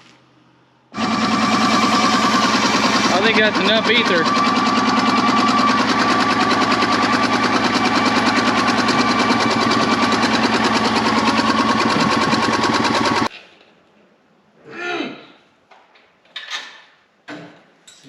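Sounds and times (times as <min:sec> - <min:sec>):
small engine cranking and firing: 0:01.0 - 0:13.3.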